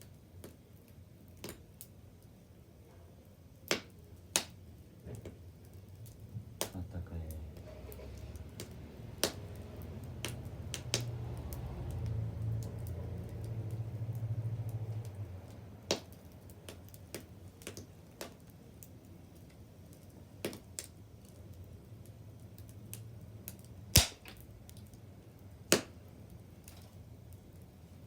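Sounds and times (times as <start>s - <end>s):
bonfire crackling and popping: 0.0s - 2.6s, 3.5s - 28.0s.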